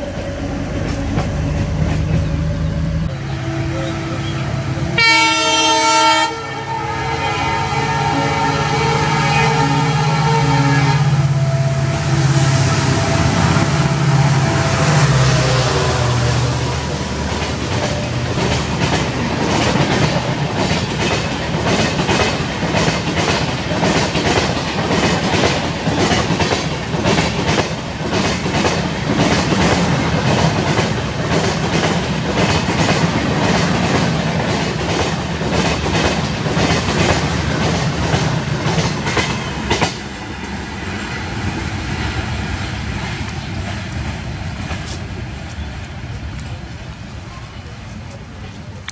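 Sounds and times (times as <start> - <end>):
diesel locomotive engine drone: 0.0 - 48.9
train wheels clacking over rail joints: 14.4 - 48.9.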